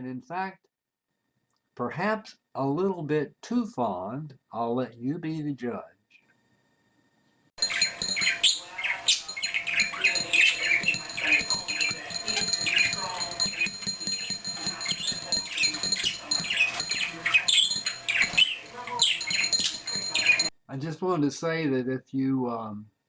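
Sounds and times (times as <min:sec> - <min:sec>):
parakeet warbling and chattering: 0:07.6 - 0:20.5.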